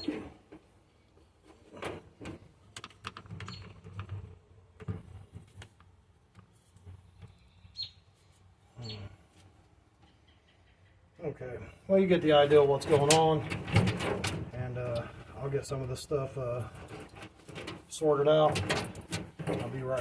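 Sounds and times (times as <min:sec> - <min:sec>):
wiring clicking and rustling: 0:01.4 - 0:07.4, 0:12.4 - 0:15.9, 0:16.5 - 0:20.0.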